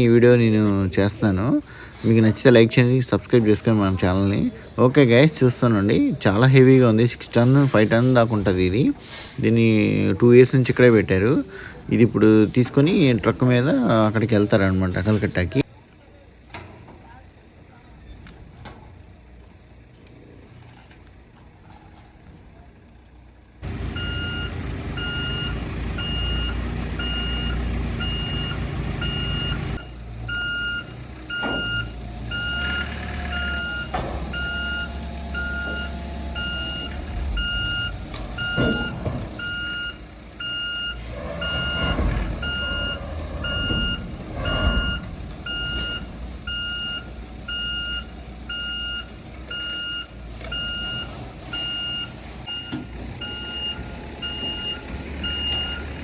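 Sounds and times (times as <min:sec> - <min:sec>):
diesel engine running: 0:00.0 - 0:56.0
reversing alarm beeps: 0:23.8 - 0:56.0.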